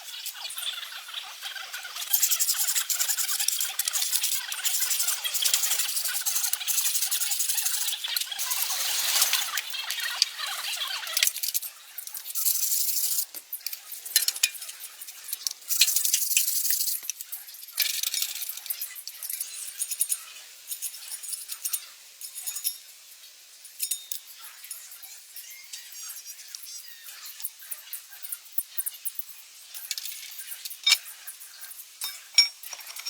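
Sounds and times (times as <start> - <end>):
metal tools clinking: 30.8 - 31.0, 32.0 - 33.0.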